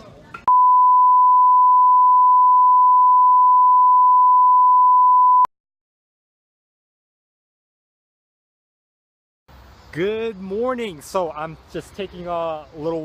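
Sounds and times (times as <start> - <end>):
electronic beep: 0.5 - 5.5.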